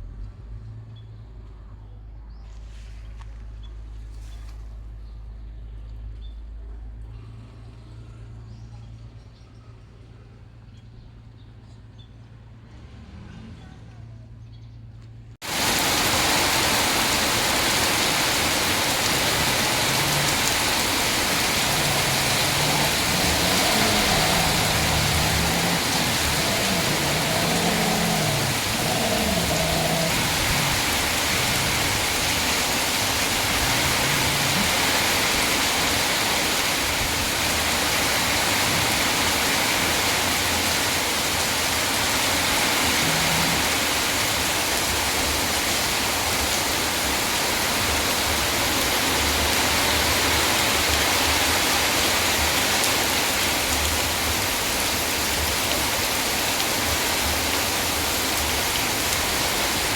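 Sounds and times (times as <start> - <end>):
faint voice: 13.3 - 14.4
loud steady rushing noise: 15.5 - 35.6.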